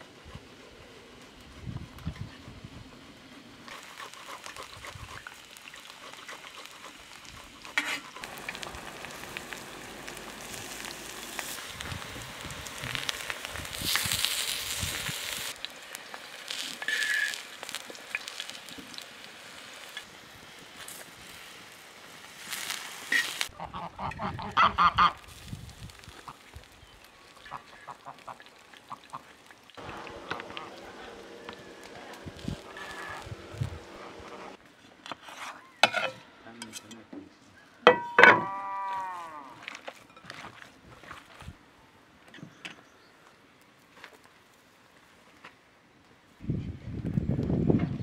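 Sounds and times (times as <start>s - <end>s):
eggplant sizzling in oil: 3.6s - 34.6s
geese honking: 29.8s - 34.6s.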